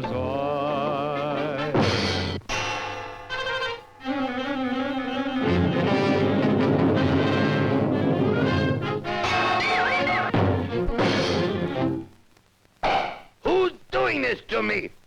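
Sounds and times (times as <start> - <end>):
brass chord: 1.7 - 12.1
full orchestra playing: 5.4 - 9.7.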